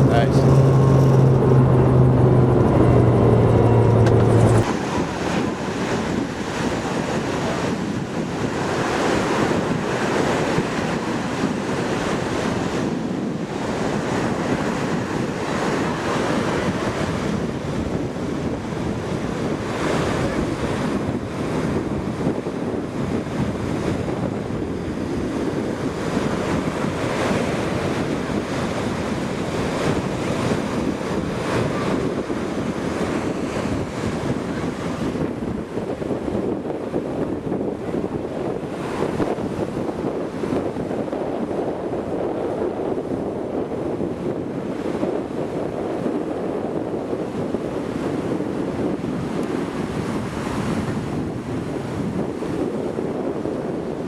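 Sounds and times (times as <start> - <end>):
loud low hum: 0.0 - 7.2
wind noise on microphone: 0.0 - 54.0.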